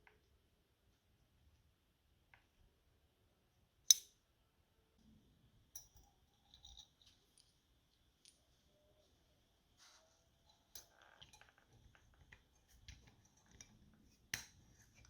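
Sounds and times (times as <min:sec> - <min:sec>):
small parts tapping and clinking: 0:05.8 - 0:08.4.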